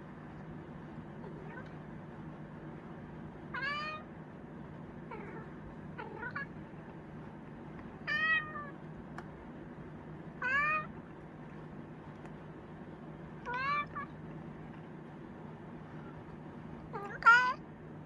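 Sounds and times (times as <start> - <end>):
cat meowing: 3.5 - 4.1, 5.1 - 6.6, 8.0 - 8.8, 10.4 - 11.0, 13.4 - 14.2, 16.9 - 17.6.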